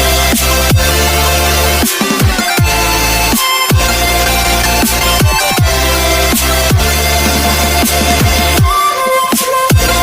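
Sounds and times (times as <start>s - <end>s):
loud dubstep music: 0.0s - 10.0s
deep bass sliding down in pitch: 2.6s - 8.6s.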